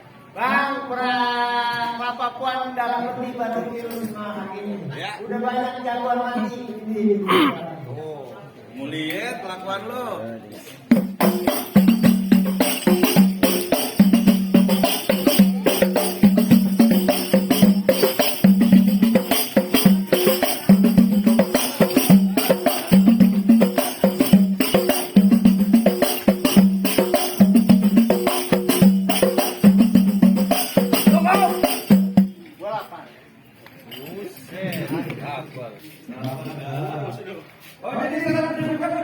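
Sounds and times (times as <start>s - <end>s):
drums in fast rhythm: 10.9s - 32.4s
tambourine jingling: 10.9s - 32.9s.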